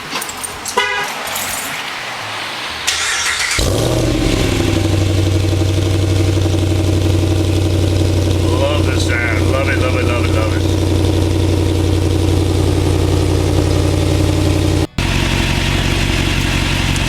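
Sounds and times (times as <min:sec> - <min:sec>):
starter motor cranking: 0:02.9 - 0:04.0
loud engine idling: 0:03.0 - 0:17.0.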